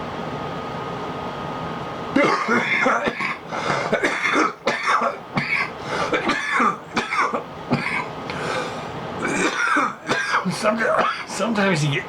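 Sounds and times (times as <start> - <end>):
man coughing harshly: 2.2 - 8.1, 9.2 - 11.4.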